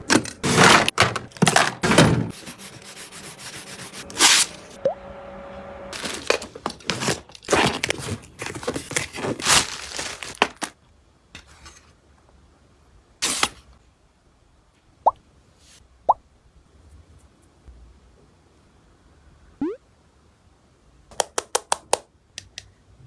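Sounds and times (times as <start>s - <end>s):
household items clicking and knocking: 0.0s - 2.4s, 6.0s - 10.7s.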